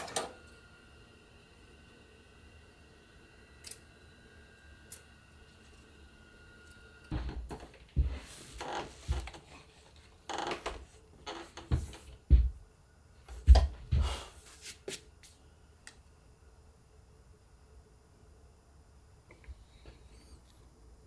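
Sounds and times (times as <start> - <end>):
heavy thumps: 7.1 - 9.3, 10.6 - 12.6, 13.3 - 14.3
knocks and rustling on a chair: 7.1 - 9.6, 10.4 - 12.6, 13.3 - 14.2.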